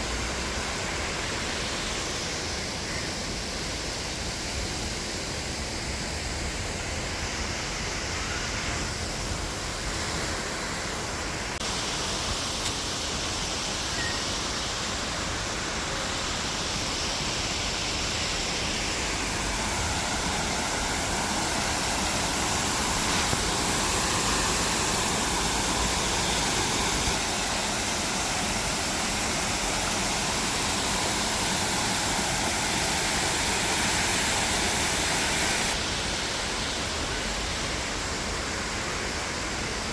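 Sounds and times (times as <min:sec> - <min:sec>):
waterfall pouring: 0:17.8 - 0:36.5.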